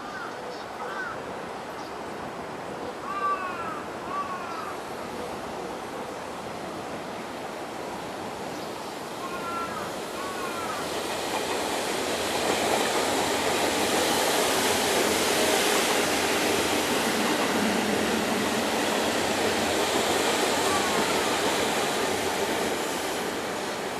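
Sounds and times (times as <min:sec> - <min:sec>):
electric train passing through: 0:04.7 - 0:23.9.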